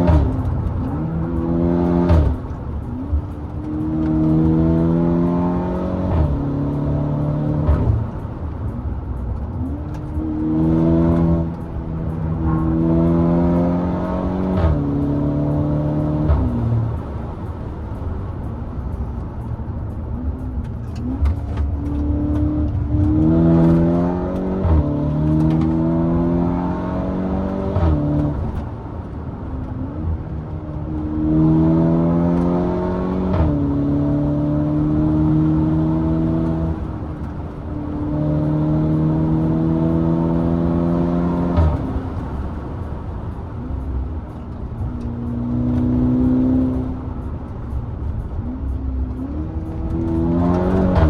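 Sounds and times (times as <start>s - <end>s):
car engine accelerating hard: 0.0s - 51.0s.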